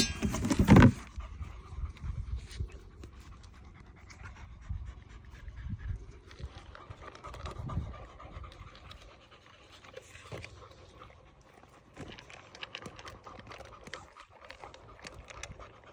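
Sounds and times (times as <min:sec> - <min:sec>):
puppies panting: 0:00.0 - 0:15.9
small clicks and scratches: 0:08.5 - 0:15.9.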